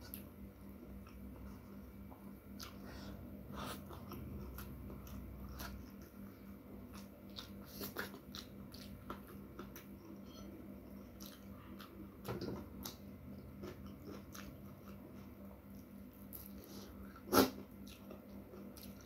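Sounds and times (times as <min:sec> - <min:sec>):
chewing with wet mouth clicks: 0:02.6 - 0:02.8, 0:03.6 - 0:06.2, 0:06.8 - 0:19.0.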